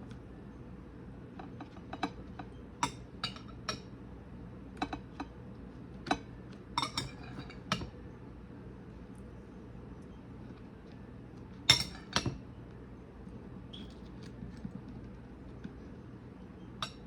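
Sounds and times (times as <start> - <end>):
utensils clinking against dishes: 6.1 - 7.9, 11.7 - 12.3.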